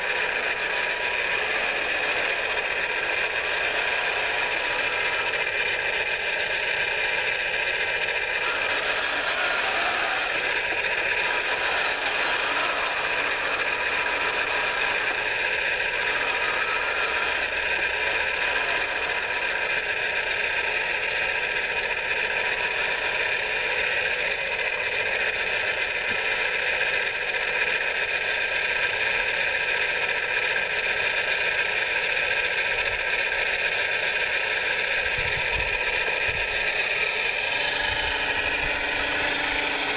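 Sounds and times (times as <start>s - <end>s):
rattle: 0.0s - 39.9s
small electric motors whining: 0.0s - 39.9s.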